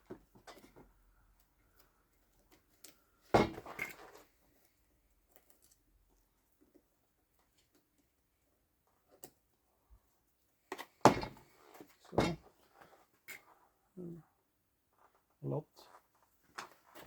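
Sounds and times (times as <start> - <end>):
parts clattering: 3.4 - 4.3, 10.7 - 13.5.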